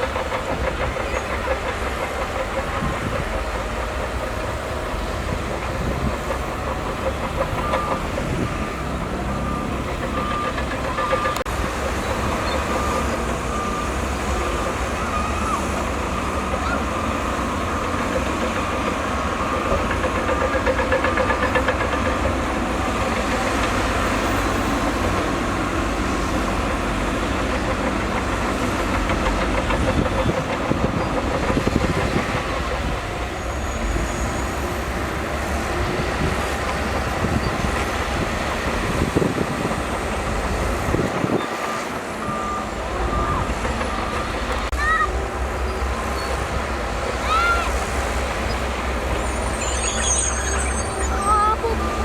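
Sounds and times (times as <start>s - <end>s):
heavy diesel machinery running: 0.0s - 52.0s.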